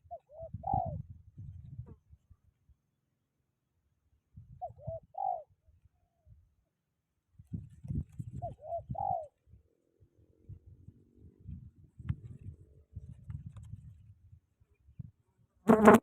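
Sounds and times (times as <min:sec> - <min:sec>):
dove cooing: 0:00.1 - 0:01.0, 0:04.6 - 0:05.5, 0:08.4 - 0:09.4
wind buffeting microphone: 0:00.4 - 0:02.0, 0:07.4 - 0:09.2, 0:10.4 - 0:15.2.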